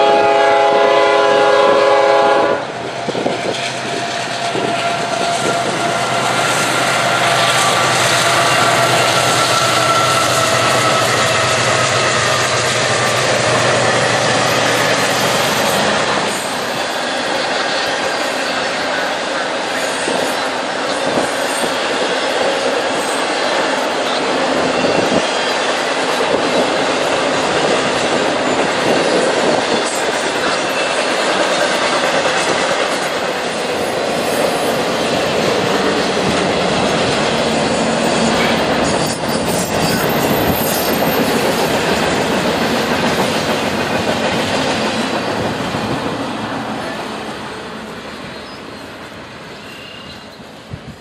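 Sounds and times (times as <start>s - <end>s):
train wheels clattering on rails: 0.0s - 51.0s
wheel squeal: 38.0s - 41.8s, 48.3s - 48.9s, 49.6s - 50.5s.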